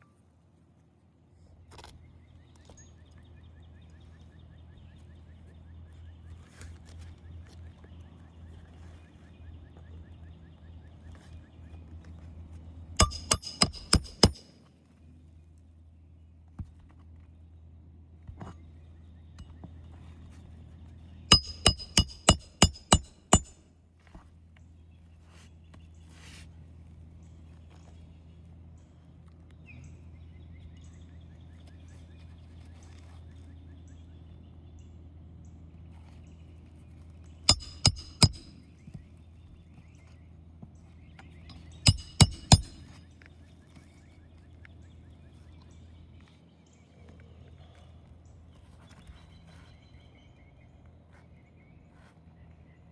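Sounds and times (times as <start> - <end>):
nails hammered into roof shingles: 13.0 - 14.5, 21.3 - 23.6, 37.5 - 38.6, 41.5 - 42.9.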